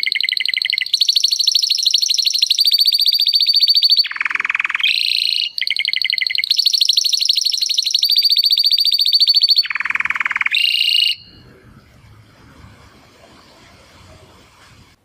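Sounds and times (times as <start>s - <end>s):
canary singing trills: 0.0s - 11.4s.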